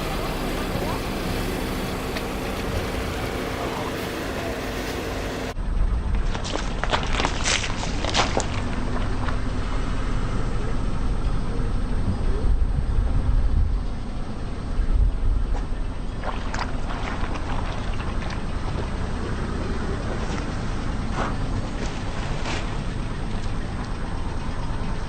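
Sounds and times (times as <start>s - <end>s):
car rumbling slowly: 0.0s - 25.0s
objects cracking under tyres: 6.1s - 9.5s.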